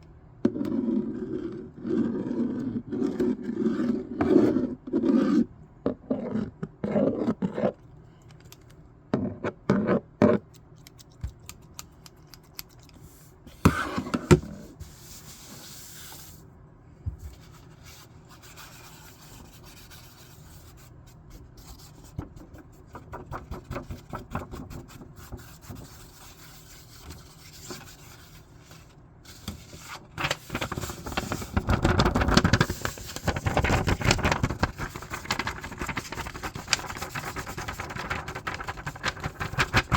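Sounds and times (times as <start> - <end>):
paper rubbing and scraping: 22.9 - 39.9.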